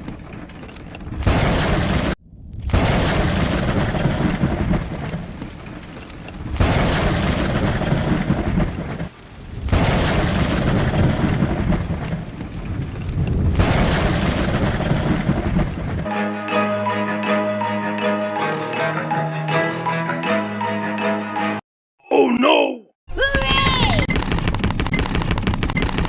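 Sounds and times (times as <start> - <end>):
rushing rumbling noise: 1.0 - 16.1.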